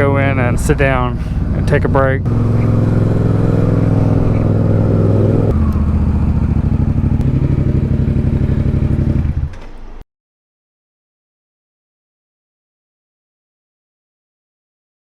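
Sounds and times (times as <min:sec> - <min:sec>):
motorcycle engine idling: 0:00.2 - 0:09.5.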